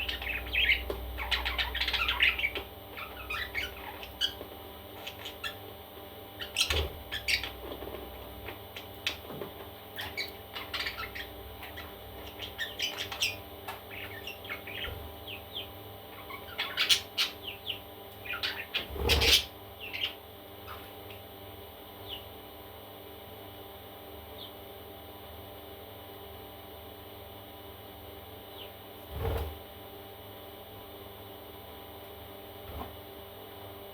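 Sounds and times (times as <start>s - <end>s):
parrot chicks chirping and squawking: 0.0s - 22.4s.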